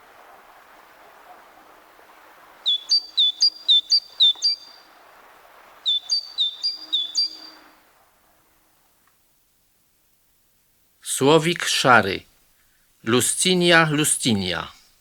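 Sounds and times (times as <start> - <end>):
great tit singing: 2.6 - 4.8, 5.9 - 7.7, 11.1 - 12.2, 13.0 - 15.0.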